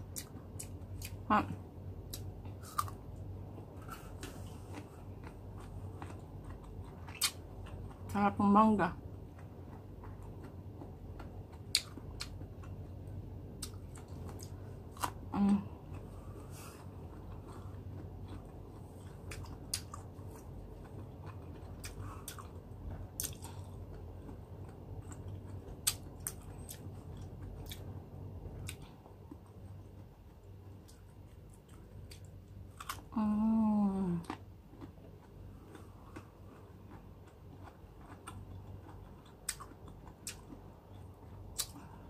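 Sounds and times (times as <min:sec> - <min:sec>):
person chewing crunchy fruit: 0:00.0 - 0:42.0.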